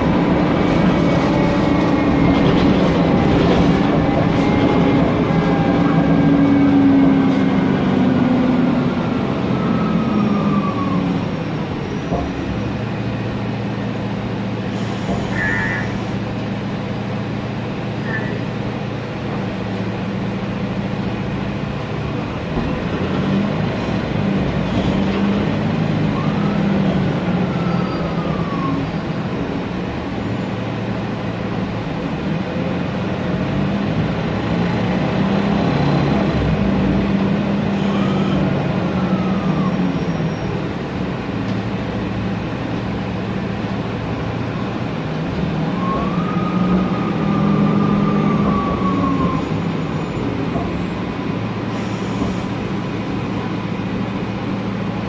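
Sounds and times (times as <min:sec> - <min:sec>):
bus engine droning: 0:00.0 - 0:55.0
transmission whistle: 0:18.0 - 0:18.5, 0:51.7 - 0:52.5.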